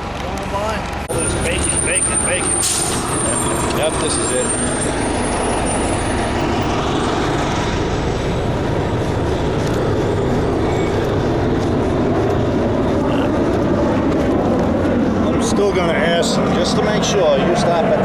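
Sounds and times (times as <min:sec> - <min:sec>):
bus engine rumbling: 0:00.0 - 0:13.6.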